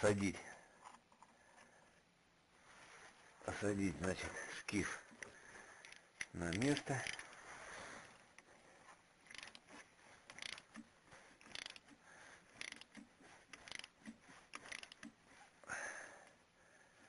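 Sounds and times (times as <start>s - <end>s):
faint ratchet wrench clicking: 9.3s - 9.7s, 10.3s - 11.9s, 12.5s - 15.2s.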